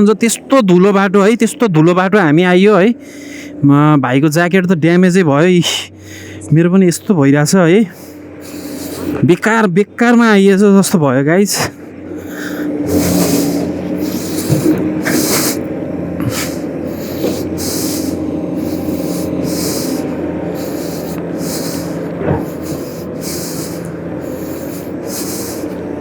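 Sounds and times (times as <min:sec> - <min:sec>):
engine hum: 0:00.0 - 0:26.0
short hissing bursts: 0:08.0 - 0:09.2, 0:12.2 - 0:15.6, 0:16.3 - 0:25.9.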